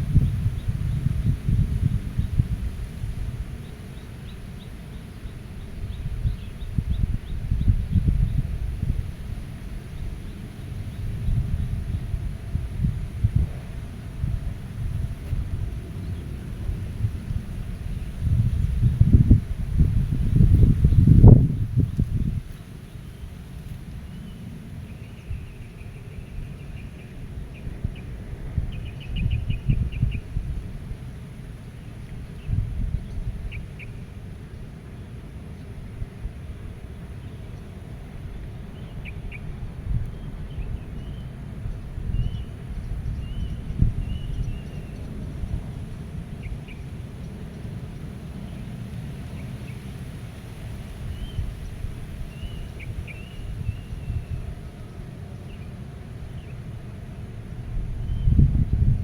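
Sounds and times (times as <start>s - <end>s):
wind rumbling: 0.0s - 24.1s, 38.0s - 55.0s, 57.4s - 59.0s
small bird singing trills: 51.1s - 54.5s.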